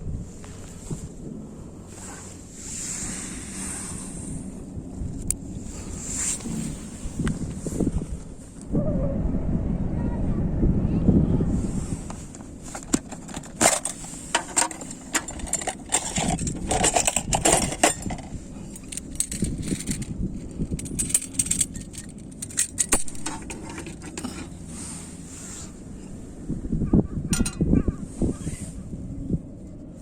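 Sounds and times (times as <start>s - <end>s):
small metal items clinking: 12.7s - 24.6s, 27.4s - 27.6s.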